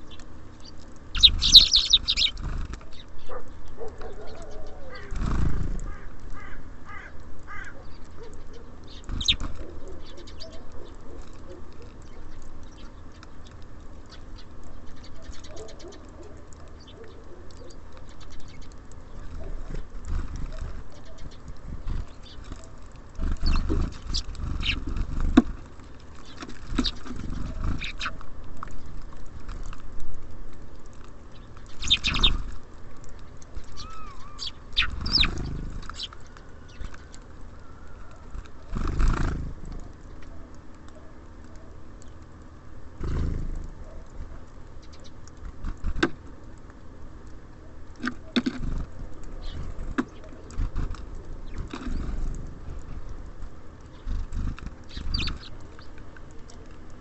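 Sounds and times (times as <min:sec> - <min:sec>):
short high bird chirps: 0:01.2 - 0:02.3
birds knocking and tapping: 0:18.3 - 0:29.8, 0:45.2 - 0:46.2, 0:48.0 - 0:53.3.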